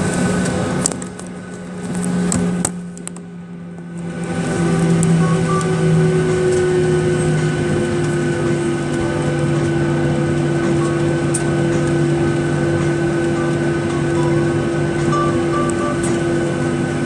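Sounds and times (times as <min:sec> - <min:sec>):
jet engines hum in cabin: 0:00.0 - 0:17.0.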